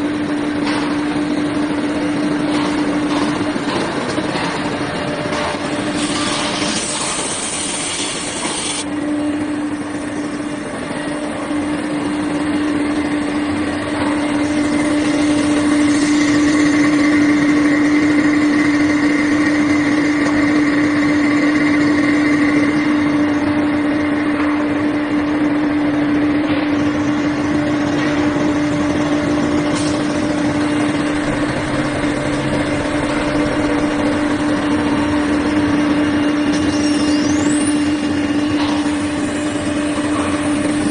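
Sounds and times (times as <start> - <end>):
cnc spindle high hum: 0.0 - 40.9
machining noise: 28.5 - 40.9.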